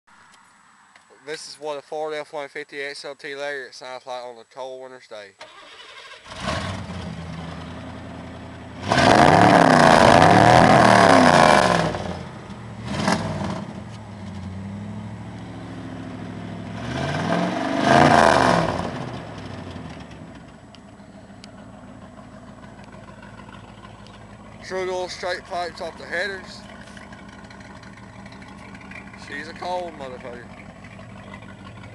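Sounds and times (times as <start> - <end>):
truck engine idling and revving: 5.6 - 31.9.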